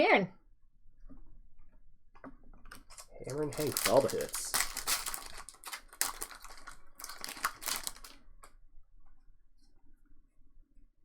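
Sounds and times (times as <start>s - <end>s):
cards being handled: 2.7s - 8.2s
foil wrapper crinkling and tearing: 2.7s - 8.6s.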